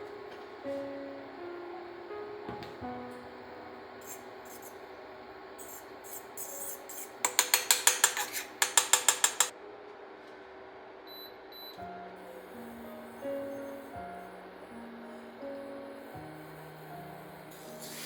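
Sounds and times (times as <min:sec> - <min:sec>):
kitchenware scraping: 0:06.5 - 0:09.5
faint background music: 0:09.5 - 0:18.0.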